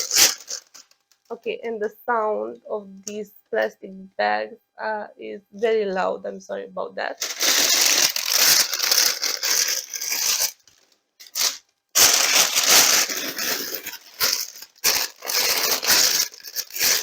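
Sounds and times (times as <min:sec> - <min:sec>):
plastic bags crinkling: 0:00.0 - 0:01.3, 0:07.2 - 0:17.0.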